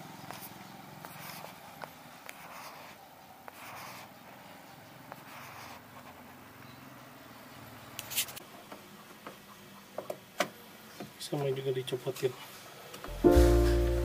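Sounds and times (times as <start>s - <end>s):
soft rustling: 0.2s - 6.4s.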